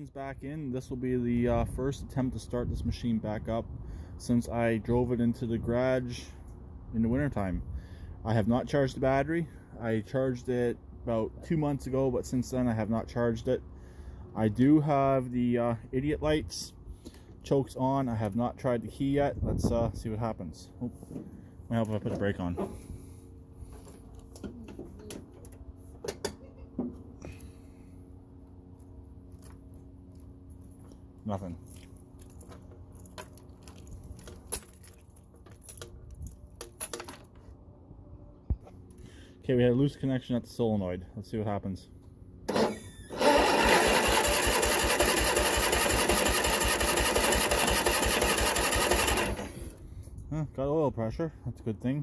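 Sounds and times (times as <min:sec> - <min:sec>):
faint steady hum: 0:00.0 - 0:43.5
engine cranking without starting: 0:42.5 - 0:49.8.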